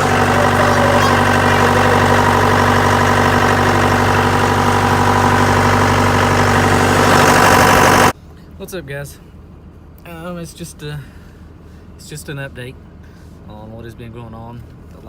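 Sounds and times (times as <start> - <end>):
diesel engine idling: 0.0 - 8.2.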